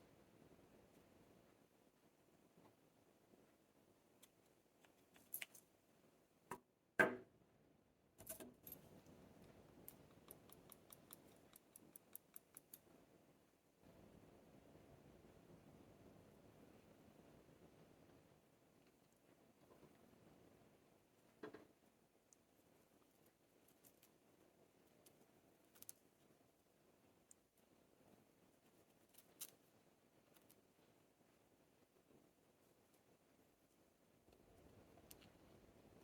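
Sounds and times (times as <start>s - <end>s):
faint soft rustle: 0.0s - 6.2s, 15.1s - 36.0s
knock: 7.0s - 7.3s.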